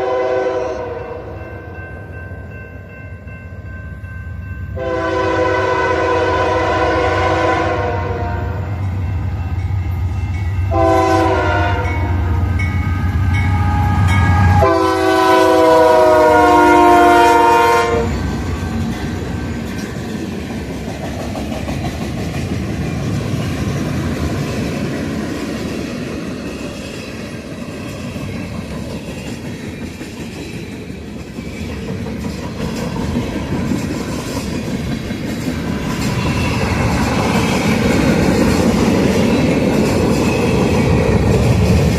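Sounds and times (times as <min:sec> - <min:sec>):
locomotive horn blasts: 0:00.0 - 0:01.4, 0:04.8 - 0:08.8, 0:10.7 - 0:12.4, 0:13.4 - 0:18.2
freight cars clickety-clack: 0:18.2 - 0:41.9.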